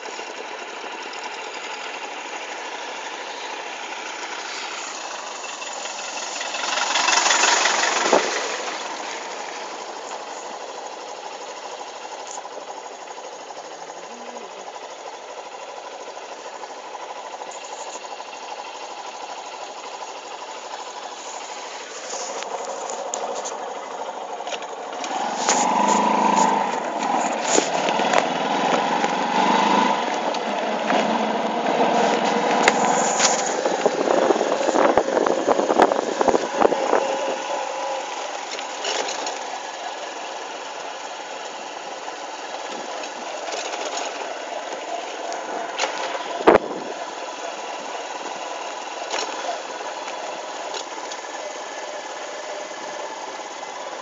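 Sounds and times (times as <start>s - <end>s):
motorcycle engine droning: 0.0s - 54.0s.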